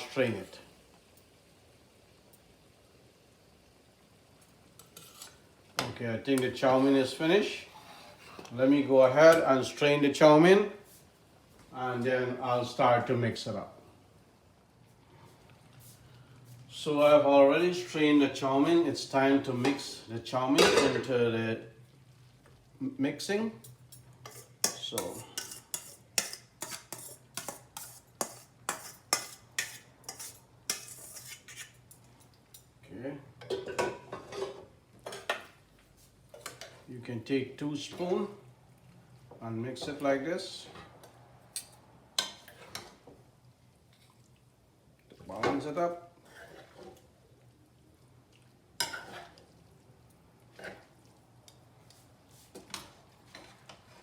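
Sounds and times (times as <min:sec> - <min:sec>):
spoons clanking against pot: 0:23.6 - 0:32.0.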